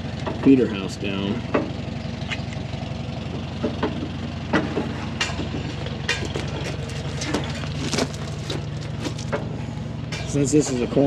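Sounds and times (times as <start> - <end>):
combine engine idling: 0.0 - 11.0
metal clanks and clicks: 3.6 - 9.5.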